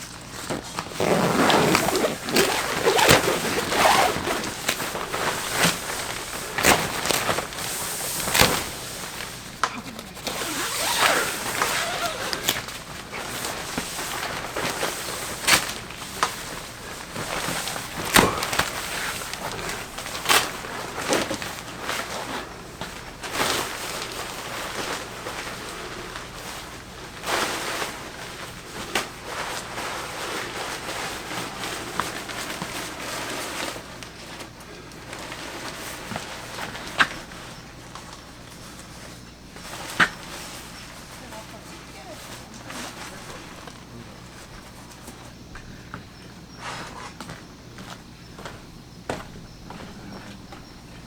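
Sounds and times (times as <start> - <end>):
steady rustling: 0.0 - 34.3.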